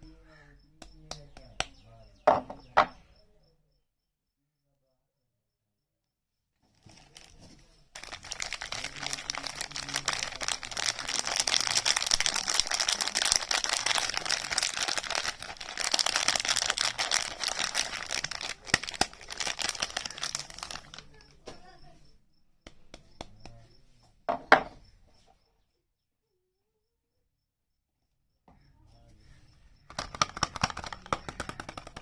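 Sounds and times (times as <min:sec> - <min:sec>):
packaging wrap crinkling and tearing: 0:06.7 - 0:21.4, 0:29.9 - 0:32.0.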